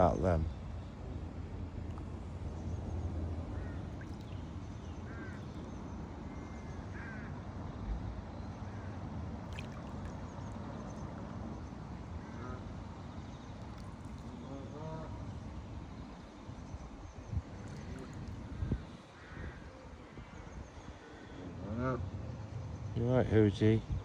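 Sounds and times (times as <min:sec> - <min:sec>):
small birds chirping: 0:00.0 - 0:07.2.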